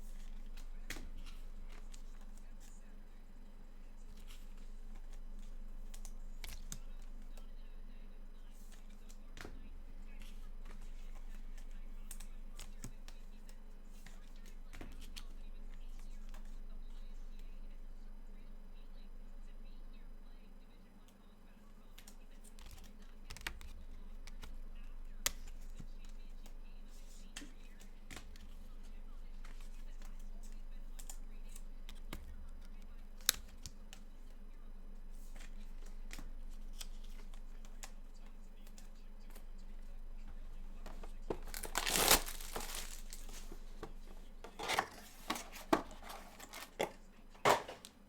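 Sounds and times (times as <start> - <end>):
cards handled on a table: 0.0 - 2.7, 4.0 - 7.5, 8.6 - 16.6, 22.0 - 24.6, 25.2 - 34.3, 35.1 - 48.0
steady low hum: 0.0 - 48.0
cards being handled clicks: 40.8 - 48.0
packaging scrapes: 41.3 - 47.8.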